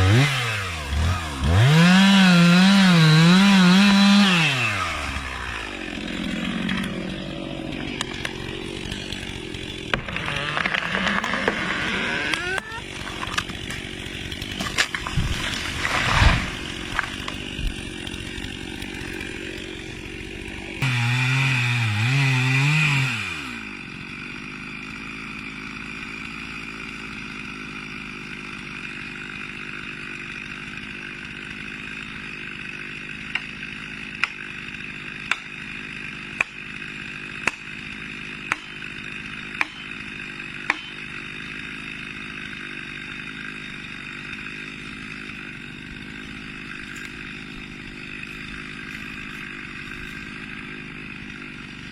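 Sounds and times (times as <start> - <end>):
chainsaw cutting: 0.0 - 51.9.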